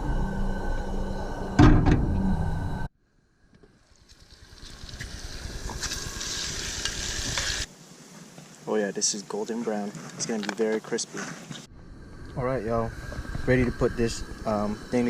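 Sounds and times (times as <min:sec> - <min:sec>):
meat sizzling in a pan: 0:04.1 - 0:07.7.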